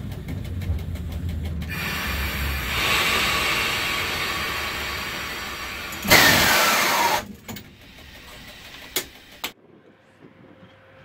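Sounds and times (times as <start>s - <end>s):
train cab running noise: 0.0s - 9.6s
loud hiss with falling whistle: 5.5s - 7.2s
sharp clicks: 7.5s - 9.6s.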